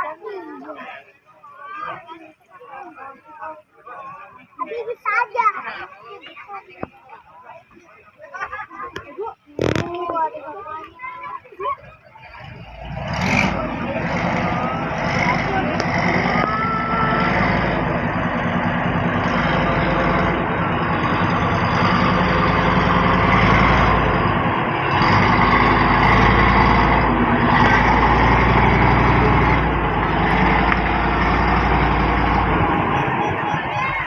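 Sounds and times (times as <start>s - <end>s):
large engine droning: 12.1s - 34.0s
rushing noise: 12.4s - 34.0s.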